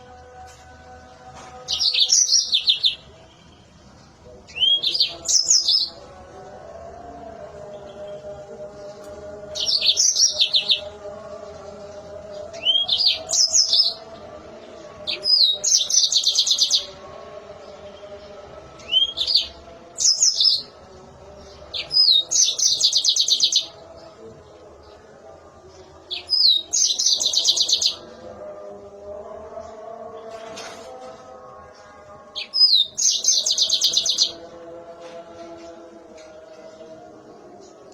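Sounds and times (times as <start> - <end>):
canary singing trilled phrases: 1.6 - 3.7, 4.4 - 6.1, 9.3 - 11.0, 12.3 - 14.2, 15.0 - 17.0, 18.8 - 24.0, 26.0 - 28.1, 32.3 - 34.4.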